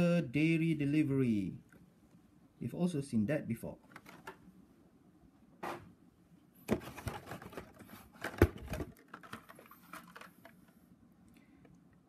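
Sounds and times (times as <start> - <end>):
blister packs clicking and rustling: 6.7 - 10.7.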